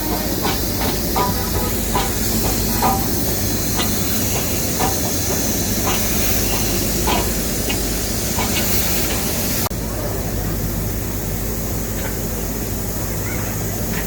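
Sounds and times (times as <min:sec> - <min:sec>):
clicks and knocks: 0:00.0 - 0:09.3
steam locomotive hissing: 0:00.0 - 0:14.0.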